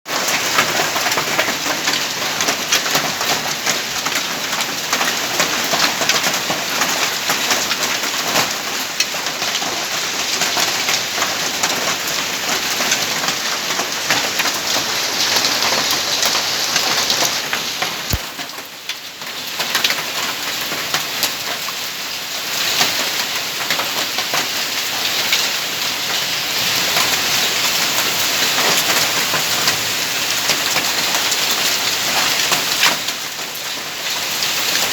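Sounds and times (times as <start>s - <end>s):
hail and heavy rain pelting: 0.1s - 34.9s.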